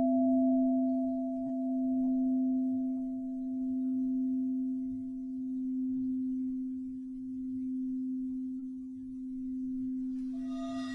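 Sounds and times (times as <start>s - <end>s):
singing bowl ringing: 0.0s - 6.7s, 9.8s - 10.9s.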